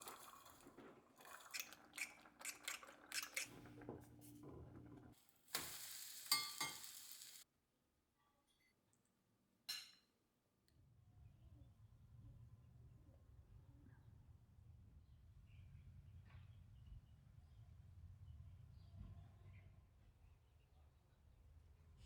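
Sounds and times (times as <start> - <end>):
steady hiss: 5.5 - 7.4
utensils clinking on dishes: 6.2 - 7.4.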